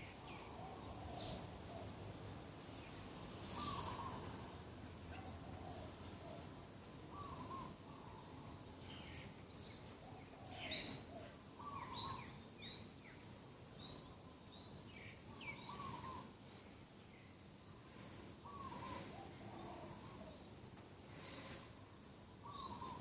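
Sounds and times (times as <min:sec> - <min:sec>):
small birds chirping: 0:00.0 - 0:01.6, 0:02.8 - 0:23.0
doves cooing: 0:03.5 - 0:04.5, 0:05.1 - 0:08.5, 0:10.0 - 0:12.3, 0:15.4 - 0:16.3, 0:18.4 - 0:20.5, 0:22.4 - 0:23.0.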